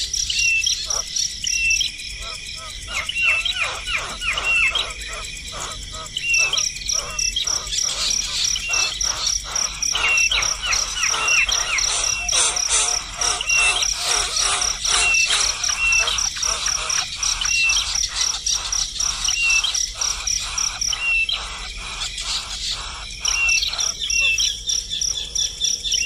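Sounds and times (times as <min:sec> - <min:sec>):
pulsing insect trill: 0:00.0 - 0:26.0
small birds chirping: 0:00.0 - 0:26.0.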